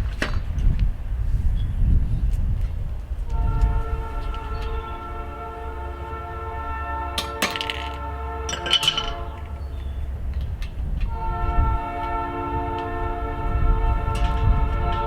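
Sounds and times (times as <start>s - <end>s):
distant train horn: 3.2s - 15.0s
metal clinks and knocks: 7.2s - 11.1s.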